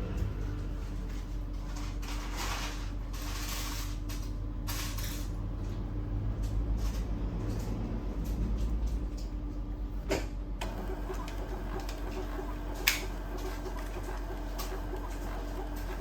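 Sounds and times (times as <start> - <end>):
steady low hum: 0.0 - 16.0
parts scraping and rustling: 1.1 - 5.3.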